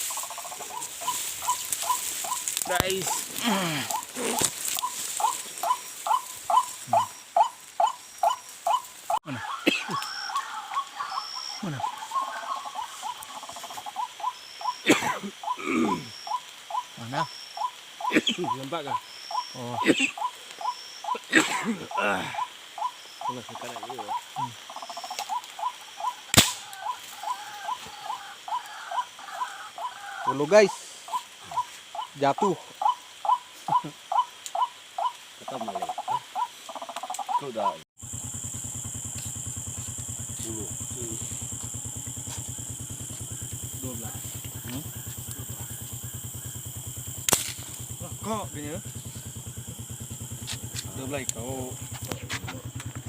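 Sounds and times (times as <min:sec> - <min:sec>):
rising animal chirps: 0:00.0 - 0:21.3, 0:21.9 - 0:32.2, 0:32.8 - 0:53.0
sharp crack: 0:26.3 - 0:26.7, 0:47.0 - 0:48.0
fast buzzing trills: 0:38.0 - 0:53.0.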